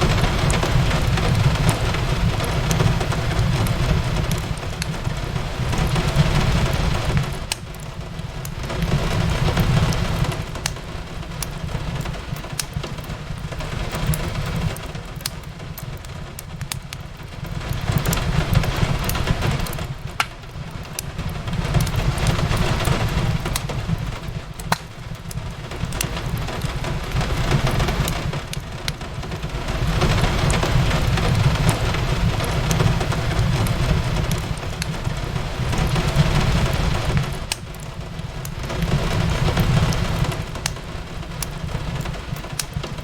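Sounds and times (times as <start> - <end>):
steady rain: 0.0 - 43.0
wood fire crackling: 0.0 - 43.0.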